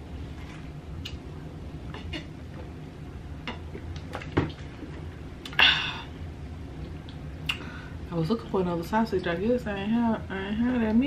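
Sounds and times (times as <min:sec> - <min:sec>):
steady low hum: 0:00.0 - 0:11.0
mouth clicks and smacks: 0:01.0 - 0:01.2, 0:06.8 - 0:07.6.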